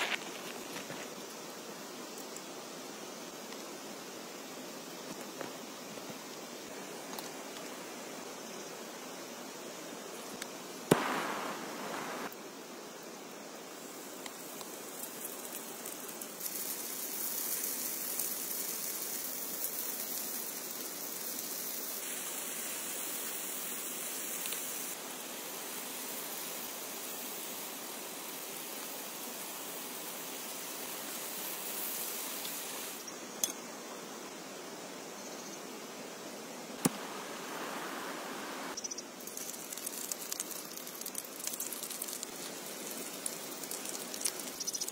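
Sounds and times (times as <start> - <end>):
heavy rain: 10.9 - 12.3.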